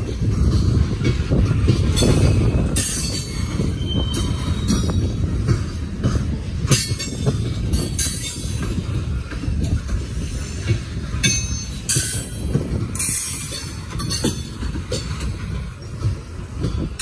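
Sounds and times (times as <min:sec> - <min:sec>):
train wheels rumbling on rails: 0:00.0 - 0:17.0
high-pitched wheel squeals: 0:02.8 - 0:05.1.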